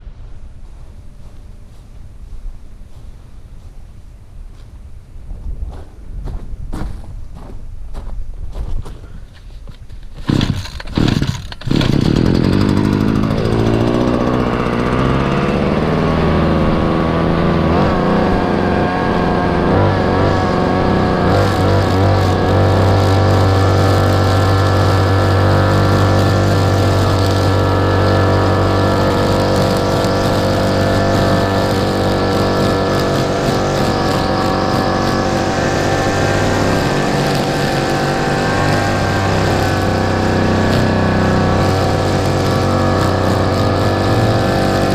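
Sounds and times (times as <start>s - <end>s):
mower engine starting: 10.0s - 44.9s.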